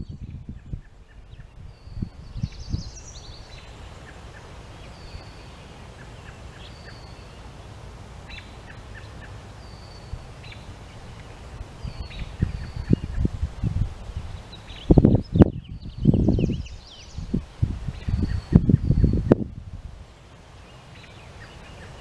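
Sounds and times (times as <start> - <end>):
birds calling: 0.0 - 19.3, 20.5 - 22.0
outdoor hiss: 0.0 - 22.0.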